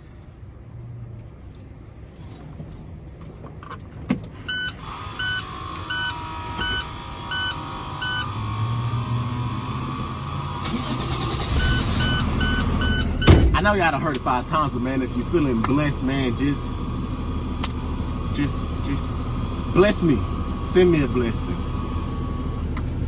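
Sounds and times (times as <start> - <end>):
truck rumble: 0.0 - 23.0
truck warning chime beeping: 4.5 - 8.5, 10.7 - 13.4.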